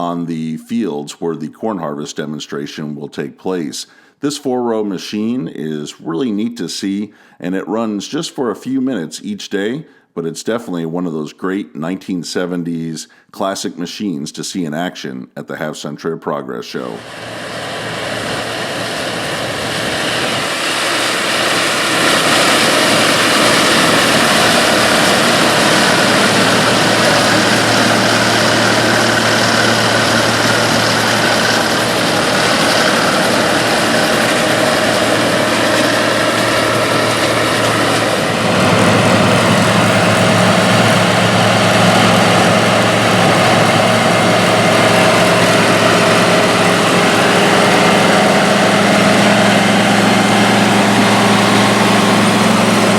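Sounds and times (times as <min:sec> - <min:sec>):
machinery noise: 0:16.9 - 0:52.9
combine harvester engine drone: 0:17.0 - 0:52.9.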